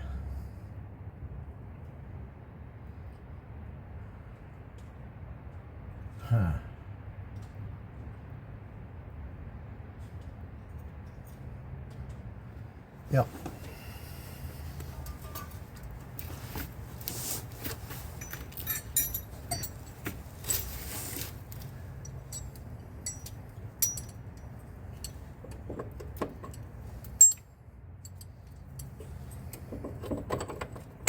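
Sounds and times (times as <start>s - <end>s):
metal tools clinking on metal: 13.4s - 16.6s, 17.6s - 31.0s.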